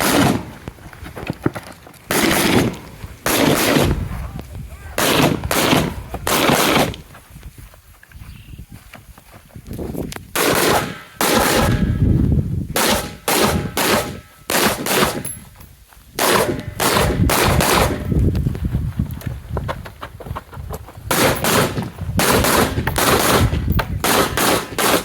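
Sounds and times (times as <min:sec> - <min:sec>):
rifle shots with ringing echo: 0:00.0 - 0:00.5, 0:02.1 - 0:04.0, 0:05.0 - 0:07.0, 0:10.4 - 0:12.0, 0:12.8 - 0:15.4, 0:16.2 - 0:18.1, 0:21.1 - 0:25.0.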